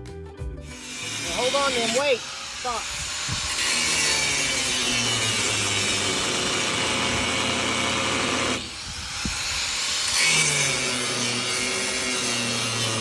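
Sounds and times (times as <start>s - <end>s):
power tool cutting: 0.6s - 13.0s.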